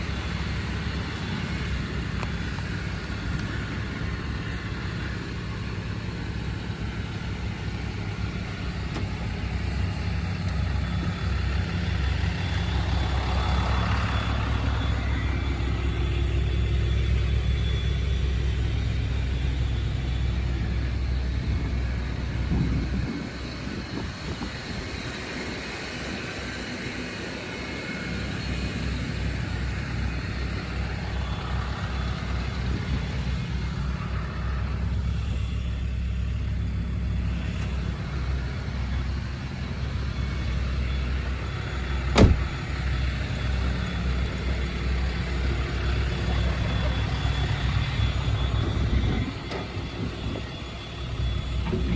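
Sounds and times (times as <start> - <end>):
pickup engine idling: 0.0 - 51.9
sharp knock: 42.2 - 42.5.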